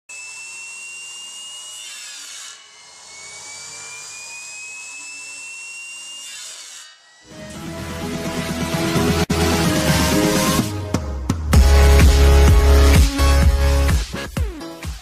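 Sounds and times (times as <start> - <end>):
motor whining with saw blade: 0.1 - 8.6
loud electronic music: 7.4 - 15.0.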